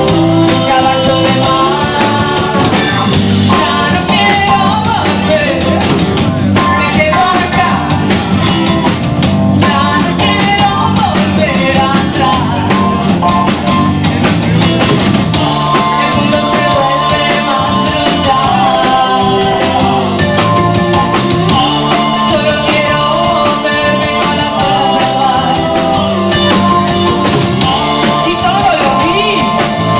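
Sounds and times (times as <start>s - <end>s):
person singing: 0.0s - 8.1s, 9.6s - 13.0s, 15.4s - 29.9s
drums with dense cymbal beat: 0.0s - 29.9s
rock band playing live: 0.0s - 29.9s.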